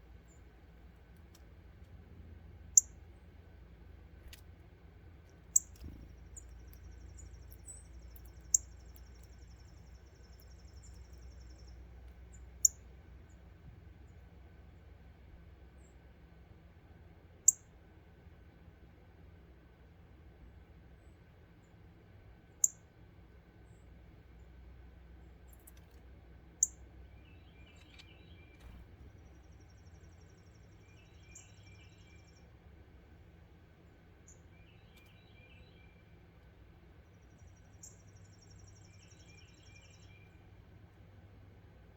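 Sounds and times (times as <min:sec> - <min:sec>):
steady outdoor background: 0:00.0 - 0:41.9
lower bird song notes: 0:02.6 - 0:03.4, 0:05.3 - 0:14.4, 0:26.5 - 0:32.8, 0:33.8 - 0:41.9.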